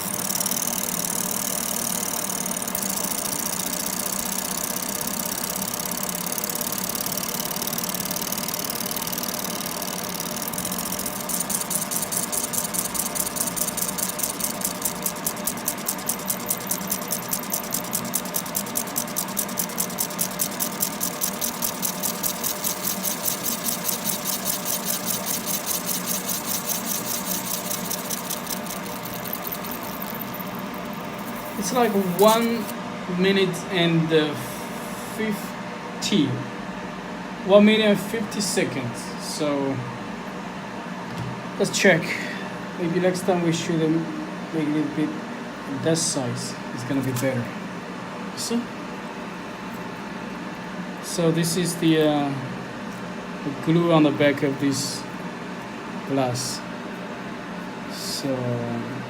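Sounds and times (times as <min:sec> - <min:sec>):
laser machine working: 0:00.0 - 0:32.8
purifier fan running: 0:00.0 - 0:59.0
fast even pulsing: 0:10.5 - 0:32.7.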